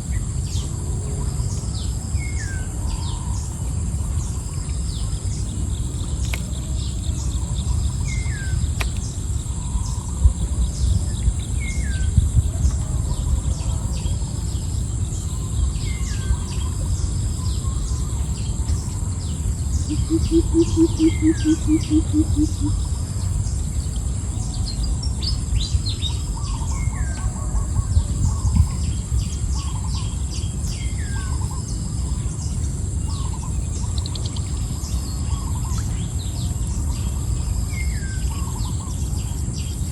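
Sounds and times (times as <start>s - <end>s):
low rumble: 0.0s - 39.8s
bird low evenly spaced notes: 0.0s - 39.9s
high insect drone: 0.0s - 39.9s
bird quick pulsed call: 19.9s - 22.8s.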